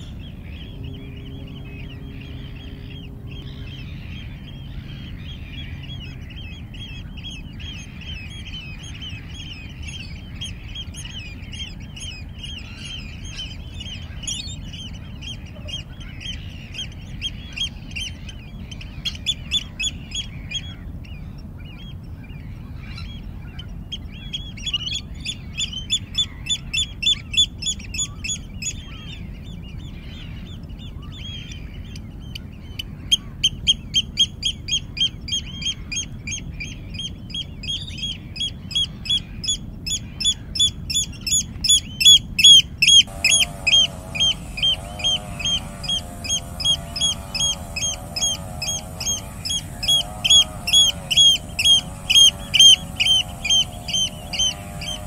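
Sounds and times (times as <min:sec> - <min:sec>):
low background rumble: 0:00.0 - 0:25.6
bird calling high notes: 0:42.9 - 0:55.0.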